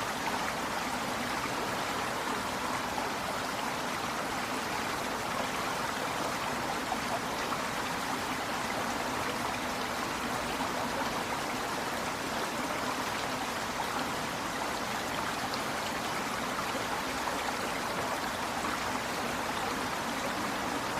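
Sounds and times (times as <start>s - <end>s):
river water flowing over rocks: 0.0s - 20.9s.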